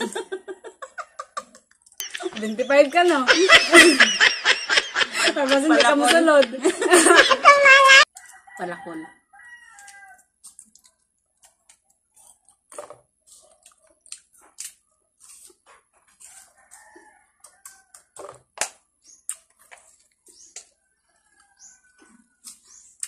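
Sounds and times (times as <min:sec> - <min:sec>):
crunchy bites and wet chewing: 0:09.7 - 0:20.8.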